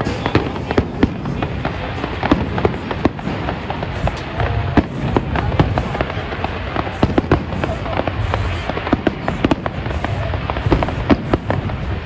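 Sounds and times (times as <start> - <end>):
fireworks bangs and crackles: 0.0 - 12.0
low rumble of bursting shells: 0.0 - 12.0.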